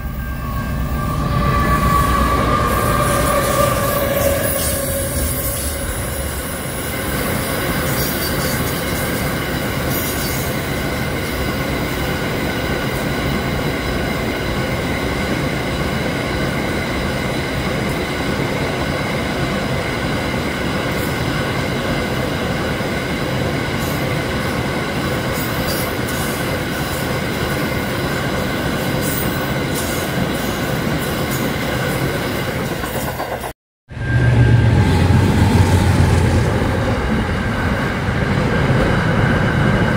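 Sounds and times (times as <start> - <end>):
high whine of several tones: 0.0 - 6.7, 33.9 - 38.2
freight train wagons rumbling: 0.0 - 14.7, 31.9 - 39.9.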